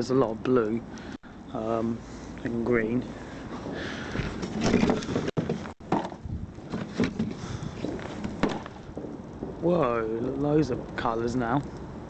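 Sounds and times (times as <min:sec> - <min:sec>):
burning wood crackling: 0:00.0 - 0:12.0.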